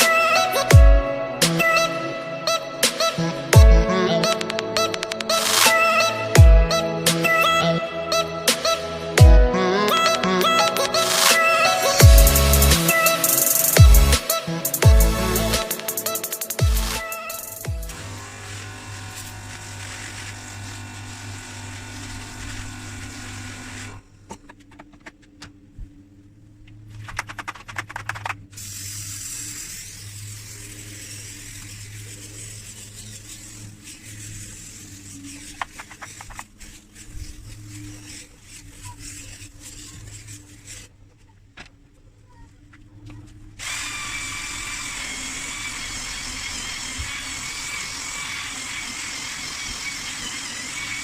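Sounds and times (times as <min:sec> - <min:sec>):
clicks: 0:04.2 - 0:06.1
small power tool running: 0:11.0 - 0:24.0, 0:28.6 - 0:40.9, 0:43.6 - 0:51.0.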